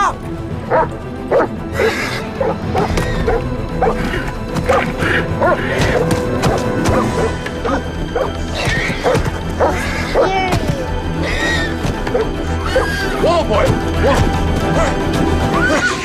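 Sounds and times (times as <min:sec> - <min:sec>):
dramatic orchestral film music: 0:00.0 - 0:16.0
dog barking: 0:00.7 - 0:04.0, 0:04.7 - 0:08.3, 0:09.0 - 0:10.4, 0:14.0 - 0:15.1.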